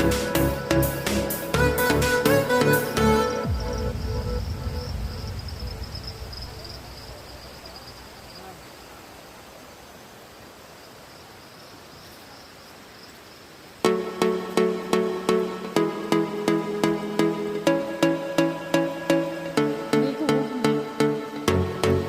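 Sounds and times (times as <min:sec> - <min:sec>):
insects buzzing: 0:00.0 - 0:22.0
low rumble: 0:03.5 - 0:08.2
faint wash of noise: 0:03.6 - 0:13.9.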